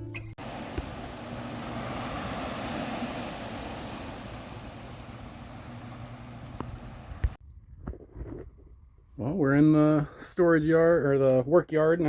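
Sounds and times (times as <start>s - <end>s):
engine running steadily: 0.4s - 7.4s.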